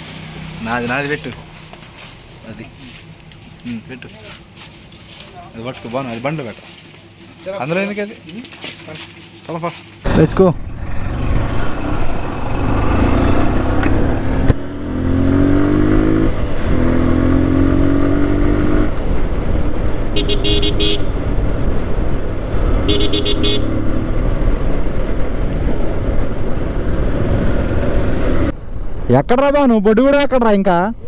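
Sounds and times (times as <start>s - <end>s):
motorcycle engine accelerating: 10.1s - 28.5s
vehicle horn honking: 20.1s - 21.4s, 22.8s - 24.0s.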